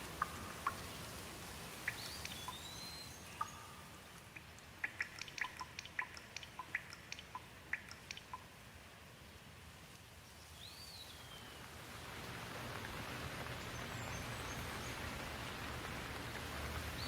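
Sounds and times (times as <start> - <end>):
rain falling: 0.0 - 17.0
bird chirping: 1.8 - 8.5.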